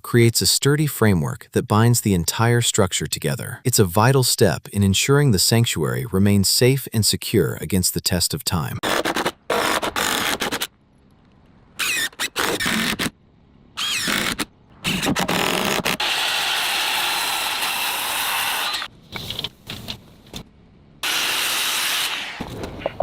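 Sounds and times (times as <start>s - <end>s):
handheld power tool motor running: 13.8s - 18.9s.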